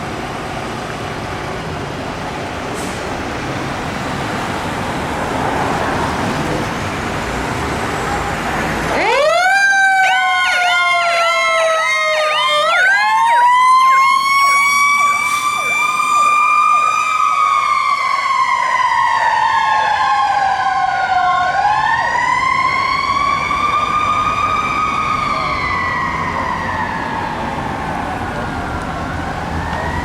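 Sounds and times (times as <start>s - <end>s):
siren wailing: 8.1s - 30.0s
siren yelping: 8.9s - 30.0s.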